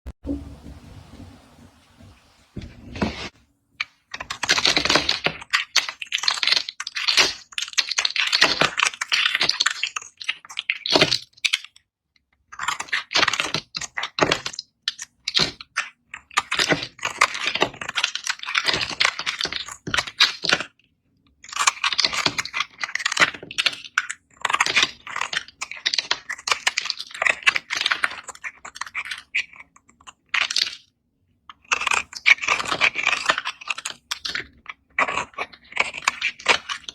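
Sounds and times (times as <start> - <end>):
knife cutting through soap: 21.4 - 30.8, 31.5 - 36.9.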